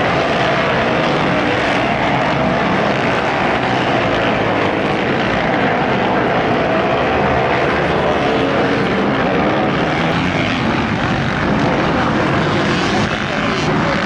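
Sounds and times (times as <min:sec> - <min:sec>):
motocross bikes racing: 0:00.0 - 0:14.0.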